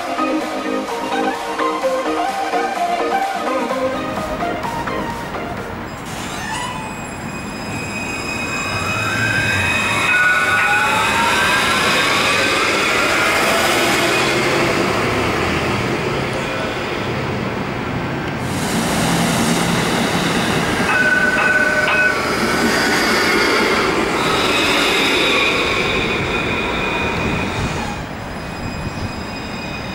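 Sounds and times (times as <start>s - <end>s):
tram electric traction whine: 0.0s - 29.9s
tram wheels rumbling on rail: 3.5s - 29.9s
high wheel squeal: 5.9s - 14.8s, 19.7s - 29.9s.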